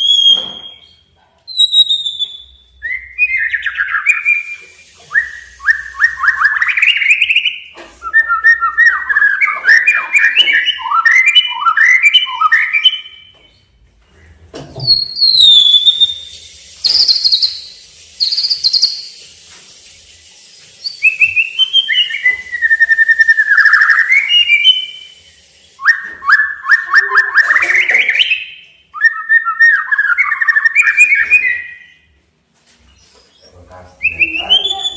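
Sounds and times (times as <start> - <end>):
bird singing whistled phrases: 0.0 - 13.3, 14.9 - 19.2, 20.8 - 32.0, 33.0 - 34.9.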